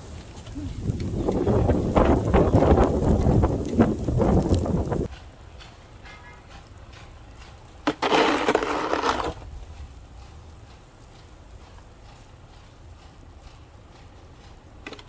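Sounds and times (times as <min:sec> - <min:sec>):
crunching scrape: 0:07.9 - 0:09.5.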